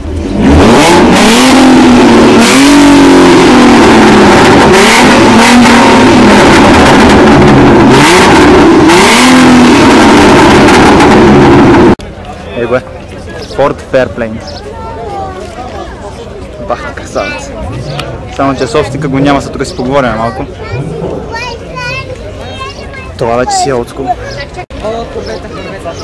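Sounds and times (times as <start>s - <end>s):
car engine revving: 0.0s - 12.0s, 17.0s - 22.3s.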